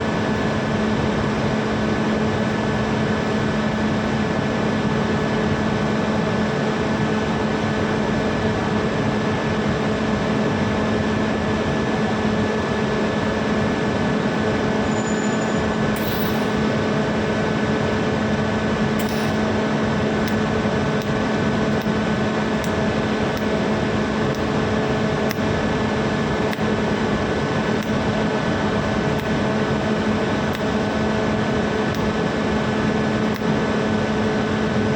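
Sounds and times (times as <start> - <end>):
machine hum: 15.6 - 34.9.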